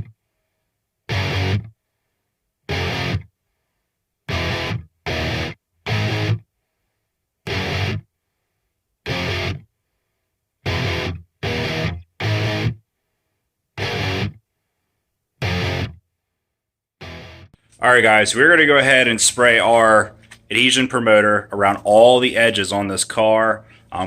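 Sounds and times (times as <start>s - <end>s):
distorted electric guitar chord stabs: 1.1s - 1.6s, 2.7s - 3.2s, 4.3s - 6.4s, 7.5s - 8.0s, 9.1s - 9.6s, 10.7s - 12.8s, 13.8s - 14.4s, 15.4s - 16.0s, 17.0s - 17.5s.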